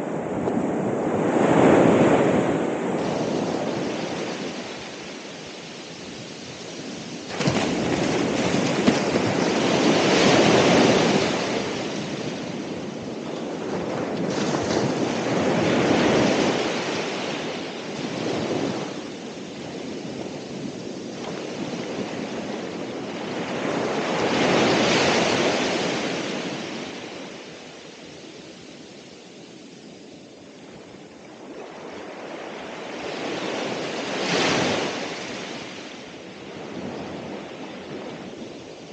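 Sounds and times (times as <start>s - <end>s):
ocean waves breaking on shore: 0.0s - 38.9s
wind noise on microphone: 0.0s - 38.9s.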